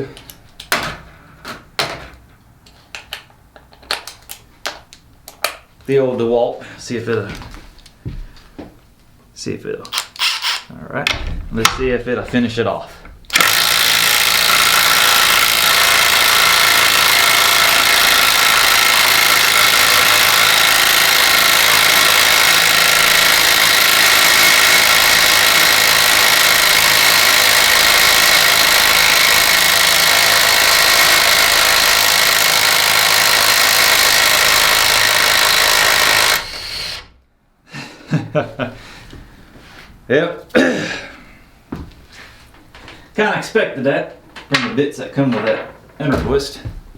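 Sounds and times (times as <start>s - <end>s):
impact driver hammering: 9.9s - 10.7s, 13.3s - 37.1s.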